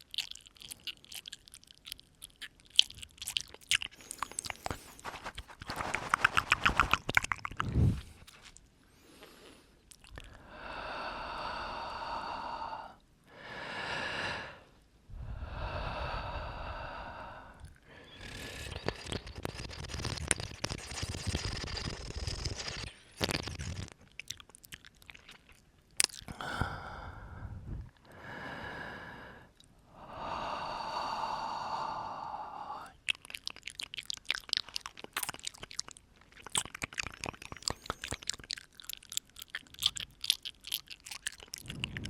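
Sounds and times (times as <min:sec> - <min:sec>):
wet mouth clicks and smacks: 0:00.0 - 0:08.7, 0:09.8 - 0:10.4, 0:17.6 - 0:26.5, 0:32.8 - 0:42.0.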